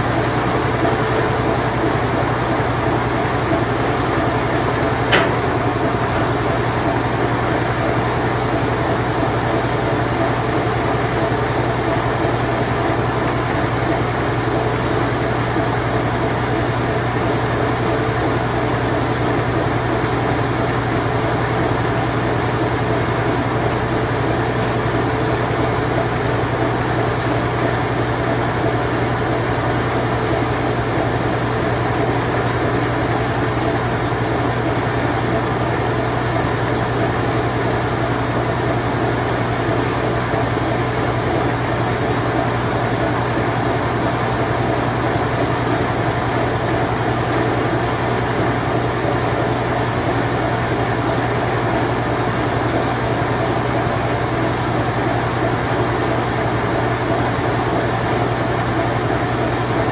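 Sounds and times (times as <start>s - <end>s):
washing machine spinning: 0.0s - 59.9s
sharp click: 5.1s - 5.4s.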